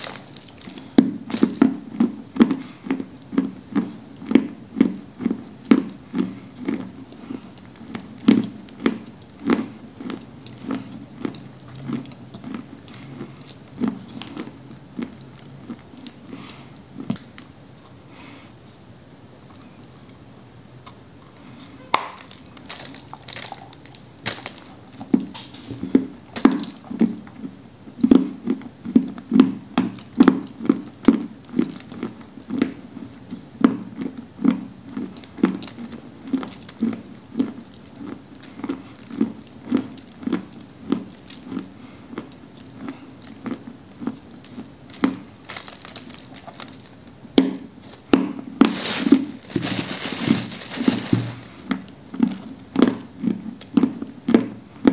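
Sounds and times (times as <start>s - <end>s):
crunching bites: 0.0s - 16.2s, 20.9s - 27.2s, 34.9s - 54.4s
wet chewing: 0.0s - 17.5s, 20.8s - 47.1s, 47.8s - 54.9s.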